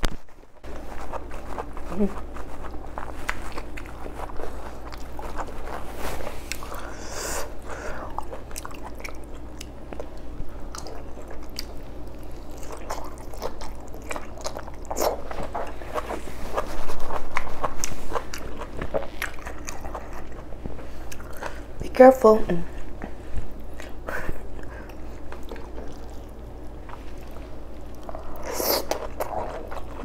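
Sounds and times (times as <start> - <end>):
chewing and lip smacking: 0.6 - 21.7, 22.9 - 30.0.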